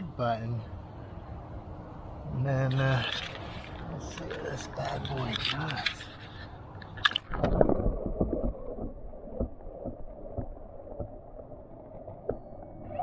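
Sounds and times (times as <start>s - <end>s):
pool water sloshing and gurgling: 2.8s - 13.0s.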